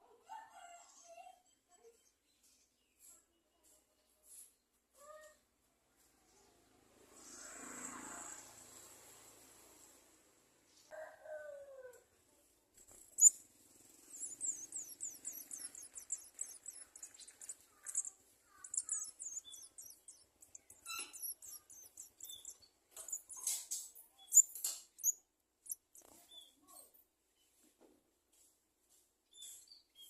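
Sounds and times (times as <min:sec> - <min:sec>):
nestlings chirping: 0:12.8 - 0:27.0.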